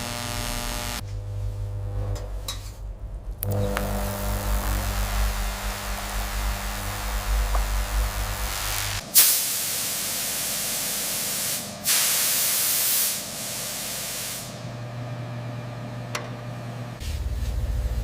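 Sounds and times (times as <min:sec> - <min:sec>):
hissing bursts of spray: 0:04.5 - 0:14.6.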